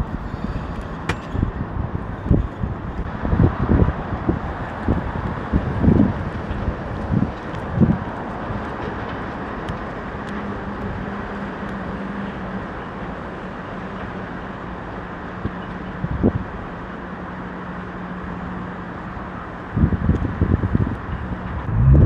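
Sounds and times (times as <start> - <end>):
wind and road noise: 0.0 - 22.0
bike bumps: 0.6 - 1.7
steady low hum: 21.3 - 22.0.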